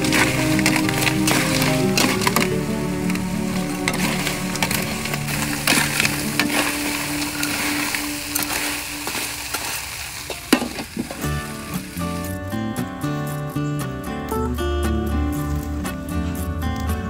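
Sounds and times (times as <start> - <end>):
crabs sizzling in oil: 0.0 - 12.4.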